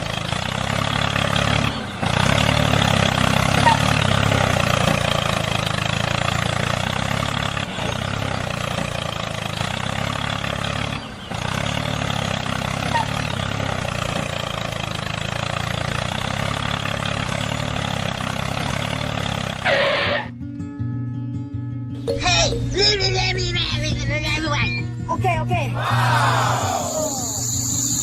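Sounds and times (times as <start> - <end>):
small engine idling: 0.0 - 19.7, 26.9 - 28.0.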